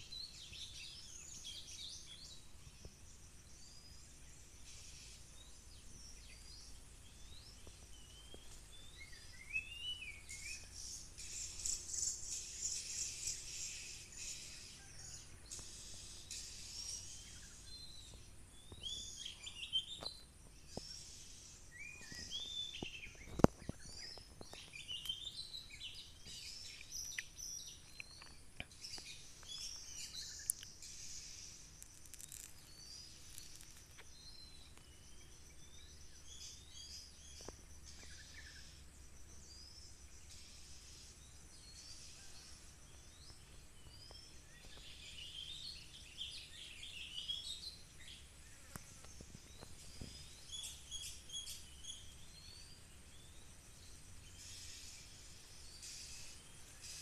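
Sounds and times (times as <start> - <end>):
bird whistles and chirps: 8.0 - 15.0.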